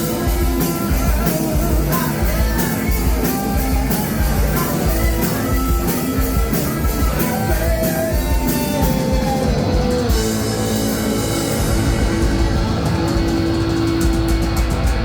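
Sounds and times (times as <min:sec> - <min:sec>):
bass guitar: 0:00.0 - 0:15.0
distorted electric guitar: 0:00.0 - 0:15.0
drum kit: 0:00.0 - 0:15.0
punk rock band playing live: 0:00.0 - 0:15.0.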